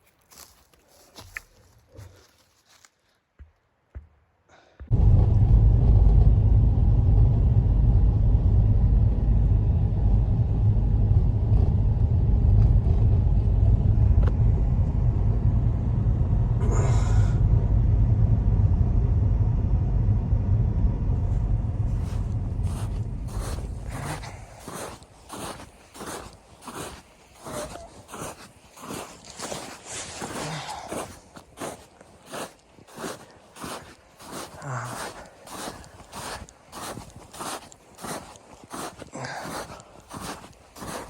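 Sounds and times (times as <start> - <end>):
wind buffeting microphone: 4.9 - 26.9.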